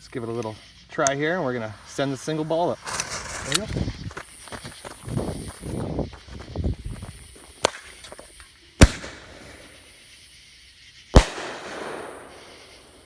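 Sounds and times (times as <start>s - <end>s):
firework mortar pop: 8.8s - 9.6s, 11.2s - 12.8s
firework bangs: 8.8s - 10.2s, 11.1s - 13.0s.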